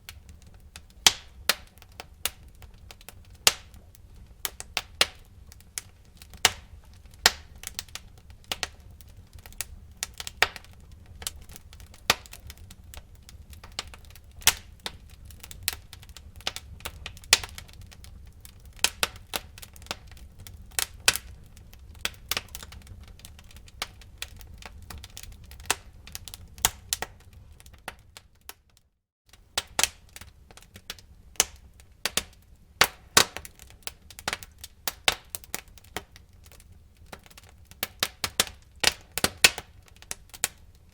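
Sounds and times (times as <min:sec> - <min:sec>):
low rumble of flames: 0:00.0 - 0:28.6
wood fire crackling and popping: 0:00.0 - 0:40.9.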